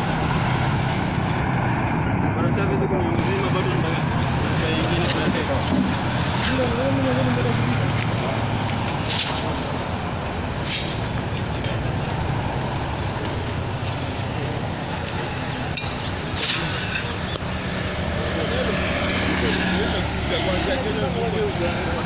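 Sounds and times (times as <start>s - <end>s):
heavy engine rumble: 0.0s - 22.0s.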